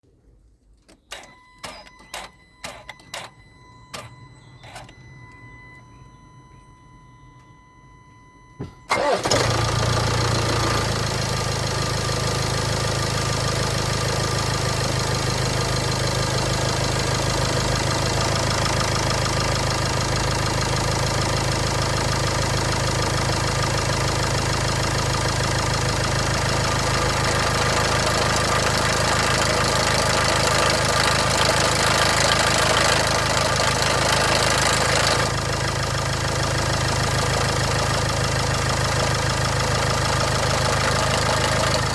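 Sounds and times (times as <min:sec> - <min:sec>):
diesel engine starting and idling: 0:00.9 - 0:41.9
engine rattle: 0:08.7 - 0:41.9.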